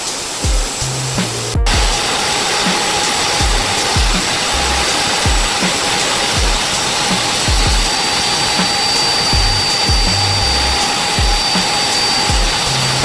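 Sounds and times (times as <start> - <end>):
music with thumping bass beat: 0.4 - 2.0, 3.4 - 5.8, 6.4 - 6.8, 7.5 - 8.0, 9.3 - 13.0
belt sander whining: 1.7 - 13.0.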